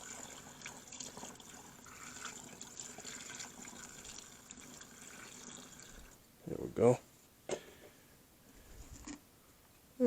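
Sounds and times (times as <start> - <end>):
liquid trickling into bottle: 0.0 - 6.2.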